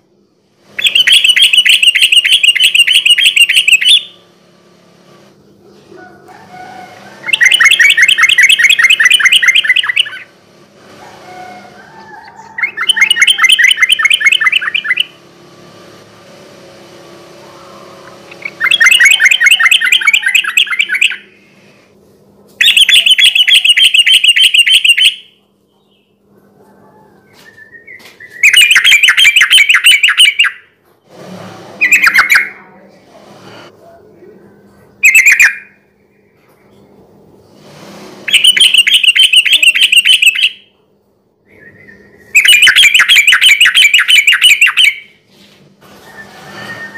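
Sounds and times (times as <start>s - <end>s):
bird singing rapid notes: 0.8s - 4.2s, 7.2s - 10.3s, 12.4s - 15.2s, 18.3s - 21.5s, 22.6s - 25.3s, 27.7s - 30.6s, 35.0s - 36.4s, 38.3s - 40.6s, 41.5s - 45.2s.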